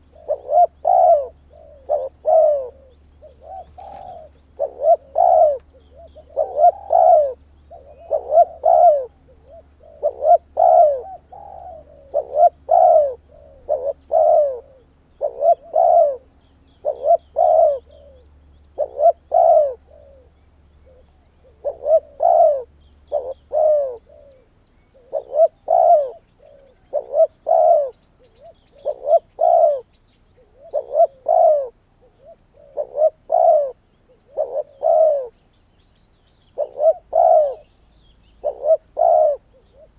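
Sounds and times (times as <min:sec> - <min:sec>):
dove cooing: 0:00.0 - 0:35.5, 0:36.4 - 0:39.9.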